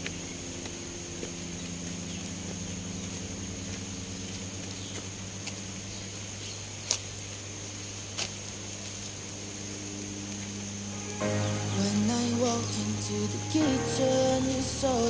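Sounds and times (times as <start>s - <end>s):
low even hum: 0.0s - 15.0s
high-pitched insect buzz: 9.7s - 15.0s.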